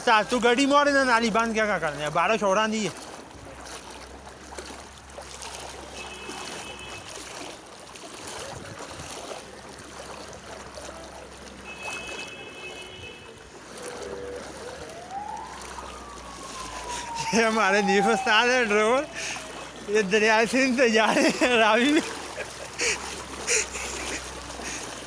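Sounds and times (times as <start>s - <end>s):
floodwater rushing: 0.0s - 25.0s
vehicle noise: 9.4s - 25.0s.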